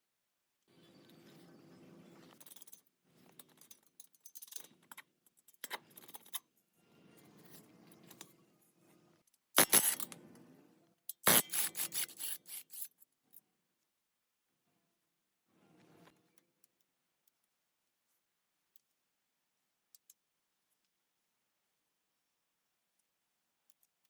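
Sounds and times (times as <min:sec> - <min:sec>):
hand tools scraping car parts: 0:11.3 - 0:12.9.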